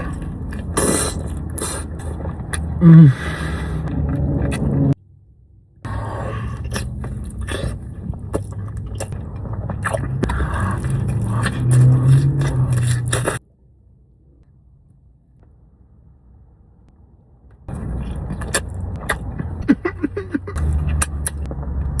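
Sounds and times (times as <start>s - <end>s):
biting and chewing: 0.0s - 2.8s, 5.9s - 13.4s, 17.7s - 21.5s.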